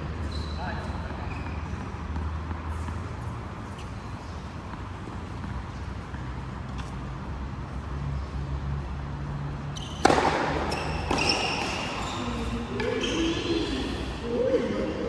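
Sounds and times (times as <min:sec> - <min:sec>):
short high squeaks: 0:09.8 - 0:14.1.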